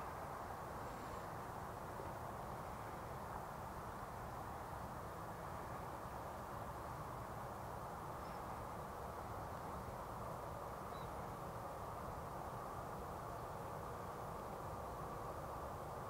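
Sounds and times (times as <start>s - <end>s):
outdoor rumble and hiss: 0.0s - 16.0s.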